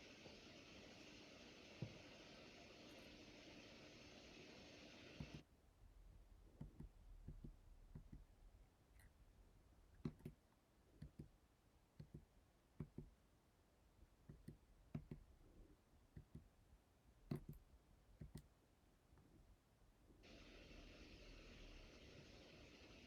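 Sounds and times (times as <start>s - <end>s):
steady hiss: 0.0s - 5.4s, 20.2s - 23.0s.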